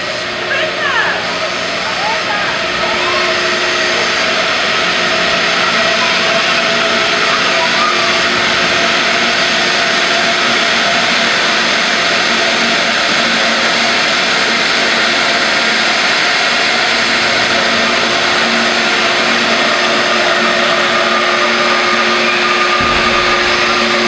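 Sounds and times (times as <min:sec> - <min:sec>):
jet engine running: 0:00.0 - 0:24.0
short low rumble: 0:22.8 - 0:24.0.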